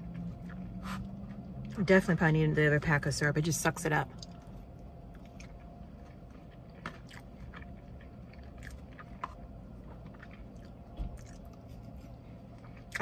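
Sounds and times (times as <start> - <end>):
chewing soft food: 0.0 - 2.0, 4.1 - 13.0
low hum: 0.0 - 13.0.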